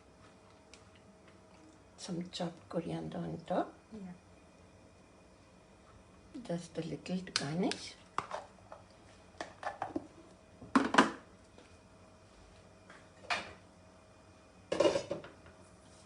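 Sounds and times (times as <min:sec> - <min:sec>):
cookware clattering: 0:14.7 - 0:15.3.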